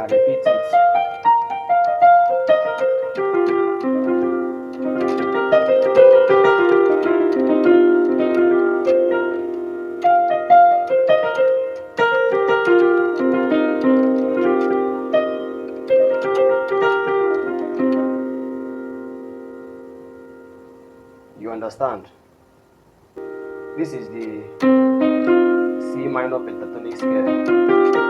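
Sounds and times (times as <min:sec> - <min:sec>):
piano playing scale runs: 0:00.0 - 0:21.8, 0:23.2 - 0:28.0.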